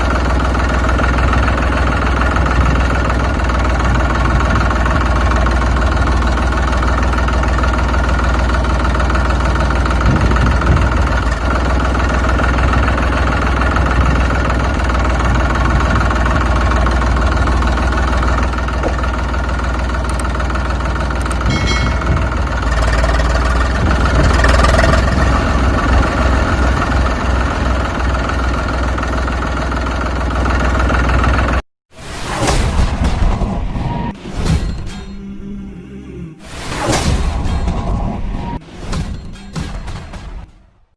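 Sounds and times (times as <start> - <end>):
engine idling: 0.0 - 31.6.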